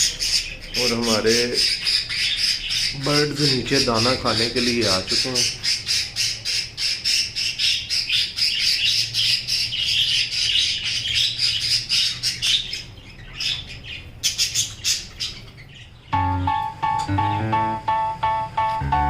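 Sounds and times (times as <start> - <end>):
parrots squawking: 0.0 - 16.7
plucked guitar music: 16.2 - 19.0.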